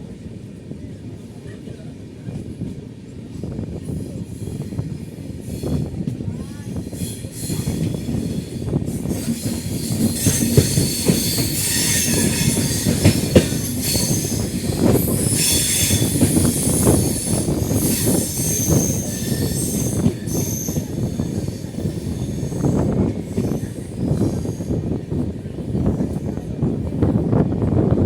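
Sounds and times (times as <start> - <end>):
train wheels rumbling and knocking: 0.0 - 28.0
high wheel squeal: 6.9 - 24.8.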